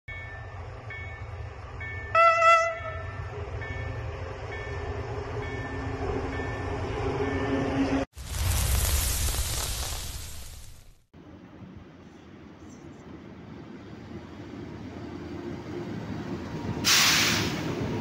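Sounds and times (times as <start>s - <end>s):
freight train rumble: 0.1s - 8.1s
locomotive horn blast: 2.1s - 3.3s
loud hissing whoosh: 8.2s - 11.0s.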